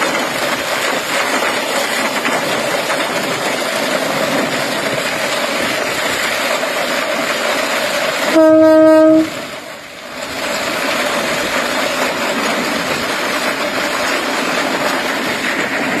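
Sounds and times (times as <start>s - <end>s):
train rushing: 0.0s - 16.0s
train horn blast: 8.3s - 9.4s.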